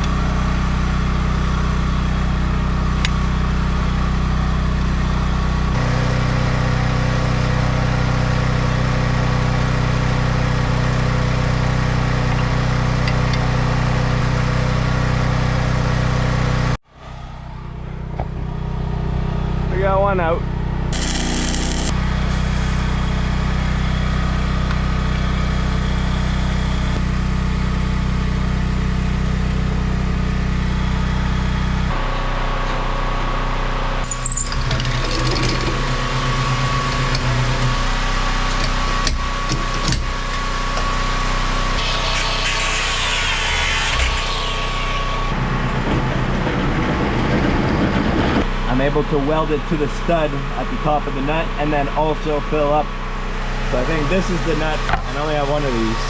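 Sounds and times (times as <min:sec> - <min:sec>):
small engine running: 0:00.0 - 0:16.8, 0:20.4 - 0:56.0
rhythmic buzz: 0:20.9 - 0:22.1.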